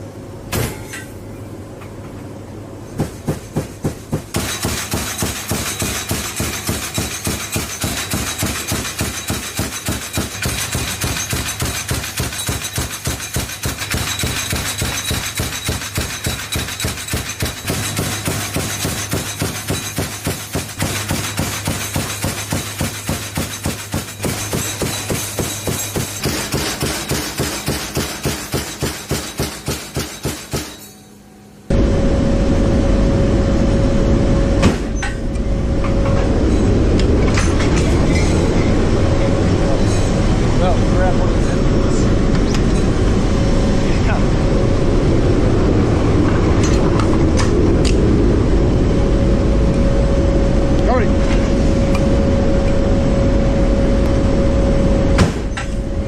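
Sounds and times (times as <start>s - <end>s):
low drone: 31.6s - 56.0s.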